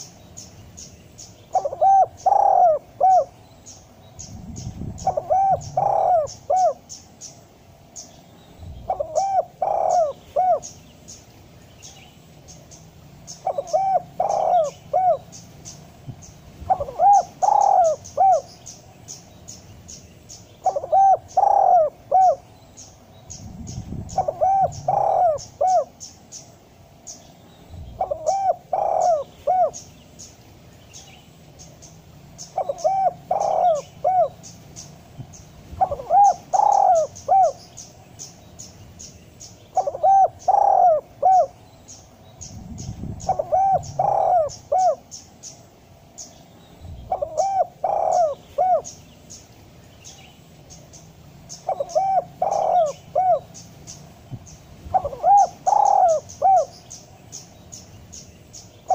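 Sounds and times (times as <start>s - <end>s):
dove cooing: 1.4s - 7.2s, 8.7s - 10.8s, 13.3s - 15.5s, 16.6s - 18.7s, 20.6s - 22.5s, 23.4s - 26.1s, 27.8s - 29.9s, 32.4s - 34.8s, 35.8s - 37.8s, 39.7s - 45.1s, 47.0s - 49.0s, 51.5s - 53.9s, 54.9s - 56.9s.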